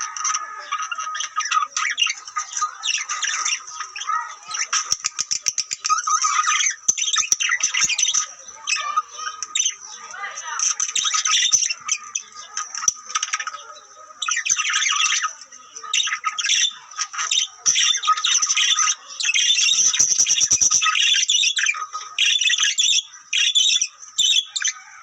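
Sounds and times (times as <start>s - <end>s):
canary singing trills: 0.0s - 25.0s.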